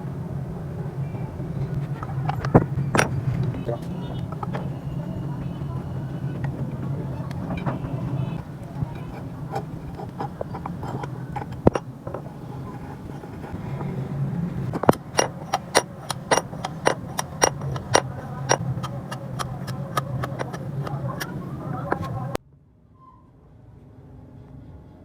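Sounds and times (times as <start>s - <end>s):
steady low hum: 0.0s - 22.4s
sharp metallic clicks: 14.7s - 22.4s.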